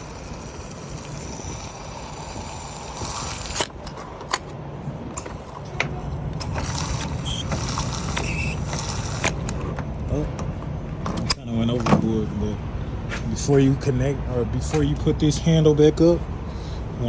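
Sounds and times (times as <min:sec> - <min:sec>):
diesel pump nozzle fuelling: 0:00.0 - 0:04.5, 0:05.1 - 0:09.8.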